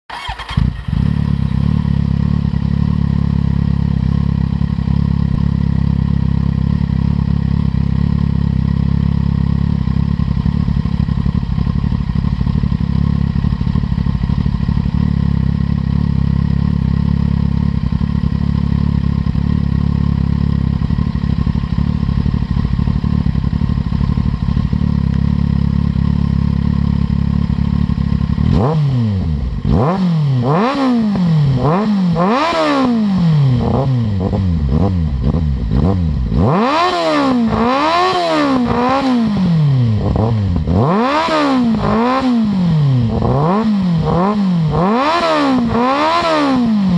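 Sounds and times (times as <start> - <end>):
motorcycle engine idling and revving: 0.0 - 46.9.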